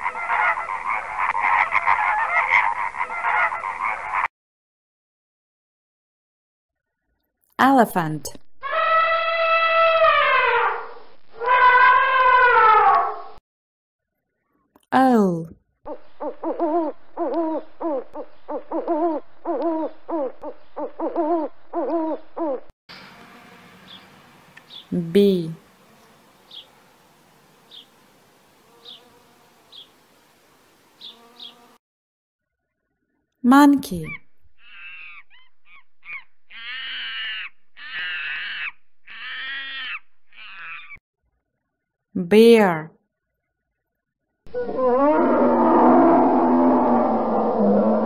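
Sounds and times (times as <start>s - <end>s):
monkey calling: 0.0s - 4.3s, 8.6s - 13.2s, 15.9s - 22.7s, 34.0s - 41.0s
owl hooting: 0.0s - 4.3s, 15.9s - 22.7s, 34.0s - 41.0s.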